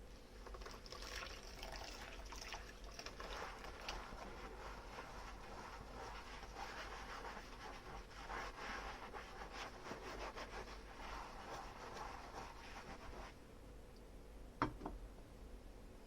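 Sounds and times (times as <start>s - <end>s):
sponge scrubbing dishes: 0.6s - 13.4s.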